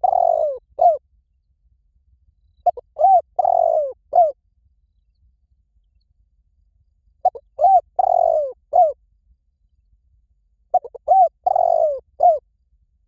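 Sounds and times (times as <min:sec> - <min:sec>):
dove cooing: 0:00.0 - 0:01.0, 0:02.6 - 0:04.4, 0:07.2 - 0:09.0, 0:10.7 - 0:12.4.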